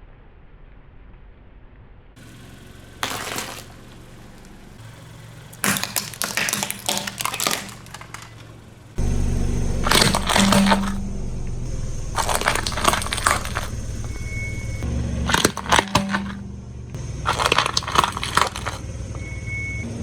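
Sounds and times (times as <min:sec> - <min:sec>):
car engine hum: 0:02.2 - 0:05.6
tyre crushing brittle objects: 0:03.0 - 0:08.6, 0:09.8 - 0:11.0, 0:12.0 - 0:16.4, 0:17.2 - 0:18.8.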